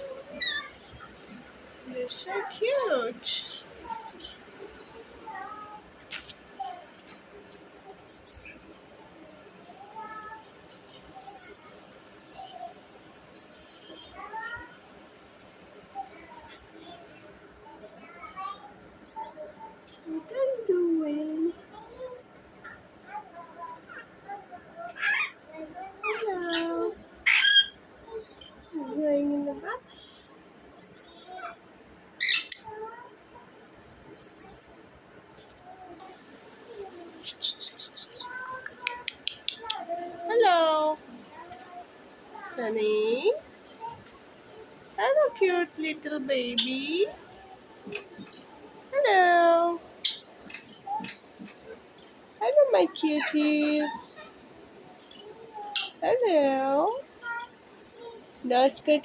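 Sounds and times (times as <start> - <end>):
pet birds chirping: 0.3 - 5.7, 7.9 - 8.7, 9.7 - 14.6, 16.0 - 17.0, 18.1 - 22.9, 24.8 - 29.8, 30.7 - 31.5, 32.2 - 33.1, 34.1 - 34.6, 35.8 - 41.7, 42.6 - 44.2, 45.0 - 54.3, 55.0 - 59.0.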